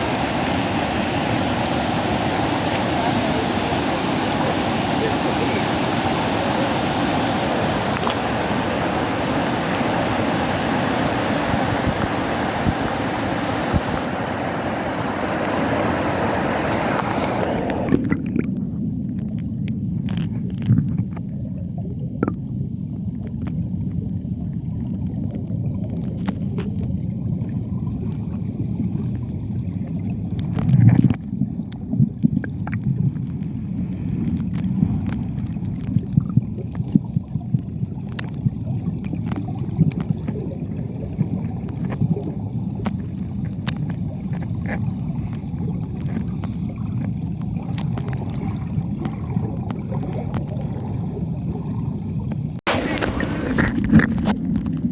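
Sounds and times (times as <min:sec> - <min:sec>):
muffled waterfall river rushing: 0:00.0 - 0:18.4, 0:52.7 - 0:54.3.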